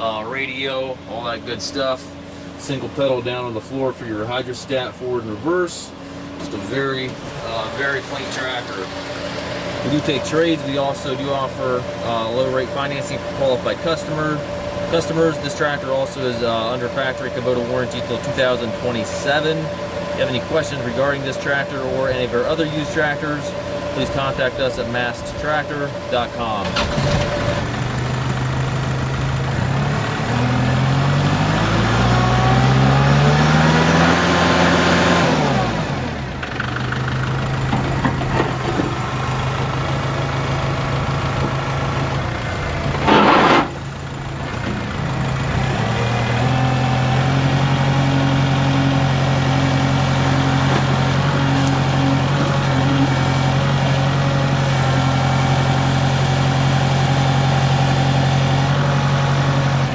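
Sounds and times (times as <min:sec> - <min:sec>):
tractor diesel engine revving: 0:05.9 - 0:59.9
loud burst of noise: 0:07.1 - 0:28.1.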